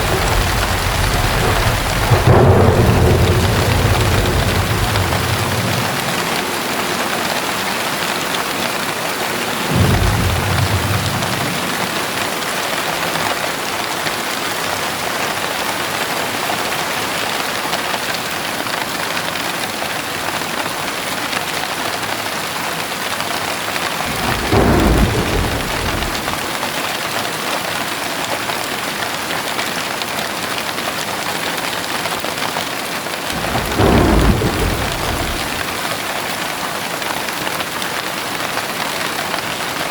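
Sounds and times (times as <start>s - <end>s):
low rumbles of thunder: 0.0s - 6.7s, 9.7s - 12.5s, 23.9s - 26.5s, 33.3s - 36.1s
heavy rain pouring: 0.0s - 39.9s.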